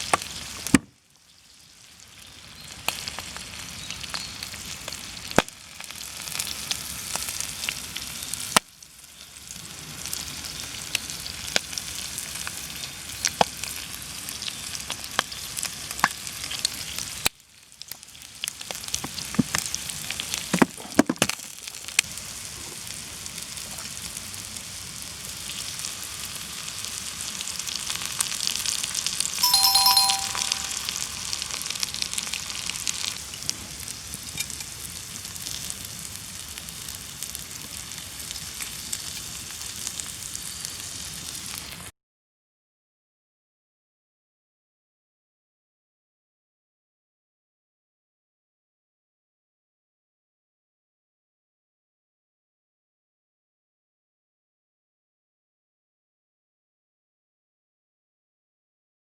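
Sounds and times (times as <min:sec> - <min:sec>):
bacon and eggs sizzling: 0:01.4 - 0:19.0.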